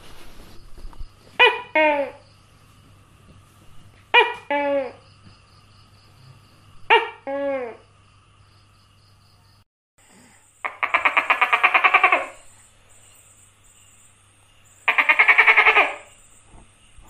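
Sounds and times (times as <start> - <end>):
gecko chattering call: 10.6 - 12.6, 14.7 - 16.3.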